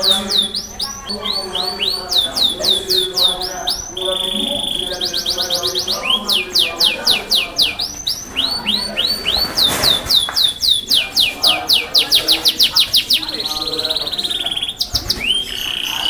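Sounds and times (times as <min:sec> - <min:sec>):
canary singing: 0:00.0 - 0:16.0.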